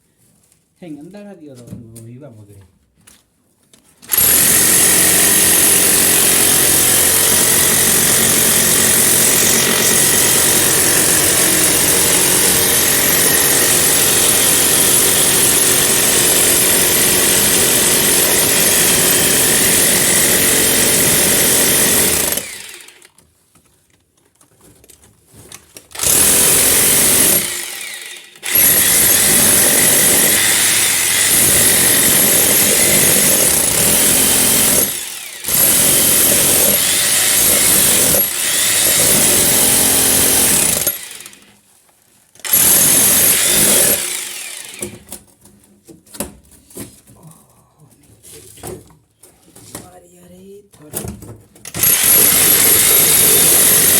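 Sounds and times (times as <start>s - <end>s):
hammer drill breaking into wall: 4.0s - 23.1s, 25.9s - 41.5s, 42.4s - 45.3s, 51.6s - 53.9s.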